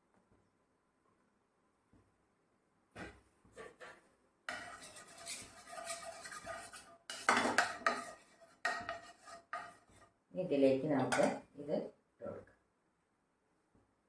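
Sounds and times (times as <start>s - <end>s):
metal utensils clinking on pans: 4.5s - 10.0s, 11.0s - 11.4s.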